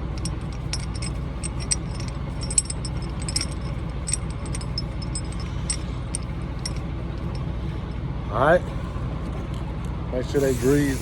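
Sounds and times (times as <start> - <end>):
ratchet binders clicking and jingling: 0.0 - 7.5
truck engine idling: 0.0 - 11.0.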